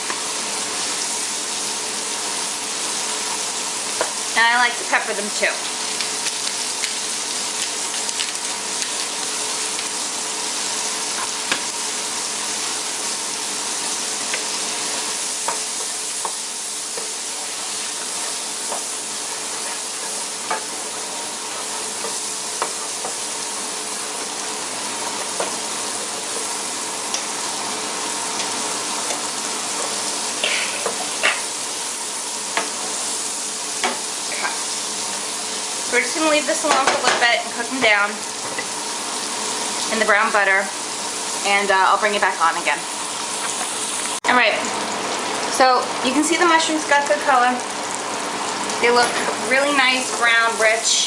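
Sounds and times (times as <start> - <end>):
mushrooms sizzling in a pan: 0.0 - 51.0.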